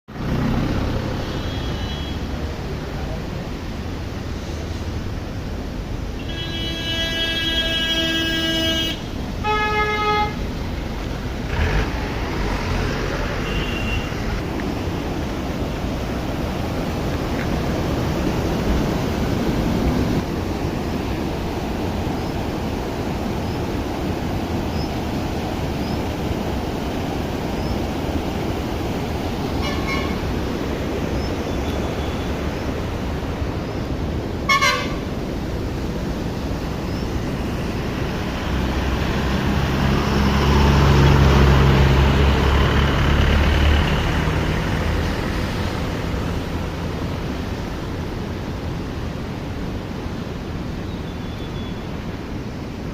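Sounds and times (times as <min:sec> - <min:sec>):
vehicle engine passing: 0:00.1 - 0:03.3, 0:10.6 - 0:21.3, 0:37.1 - 0:47.6
vehicle horn toots: 0:01.2 - 0:02.3, 0:06.2 - 0:10.4, 0:13.4 - 0:14.2, 0:29.6 - 0:30.2, 0:34.5 - 0:35.1
waterfall rushing: 0:10.2 - 0:52.9.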